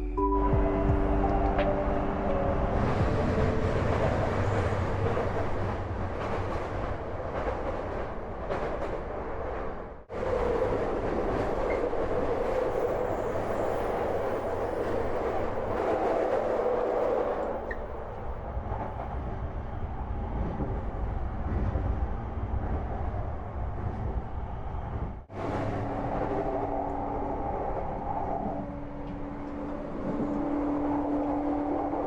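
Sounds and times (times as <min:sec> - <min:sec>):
train wheels rumbling on rails: 0:00.9 - 0:32.0.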